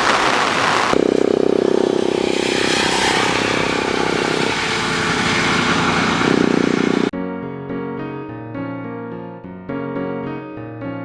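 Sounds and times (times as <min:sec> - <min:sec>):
vehicle engine running: 0:00.1 - 0:07.1.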